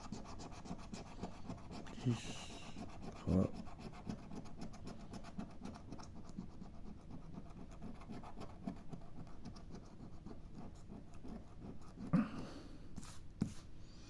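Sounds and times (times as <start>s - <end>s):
scratching lottery ticket: 0.0s - 12.1s.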